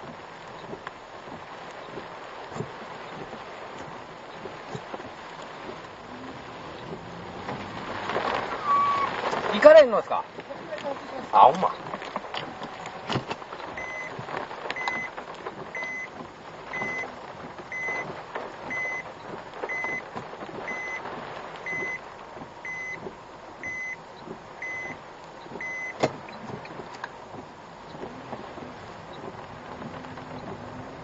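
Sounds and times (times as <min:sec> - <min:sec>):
rain and wind on car: 0:00.0 - 0:31.0
reverse warning beeps: 0:13.7 - 0:14.2, 0:14.8 - 0:15.1, 0:15.7 - 0:17.1, 0:17.7 - 0:18.1, 0:18.7 - 0:20.1, 0:20.7 - 0:22.0, 0:22.6 - 0:23.0, 0:23.6 - 0:24.0, 0:24.6 - 0:25.0, 0:25.6 - 0:26.0.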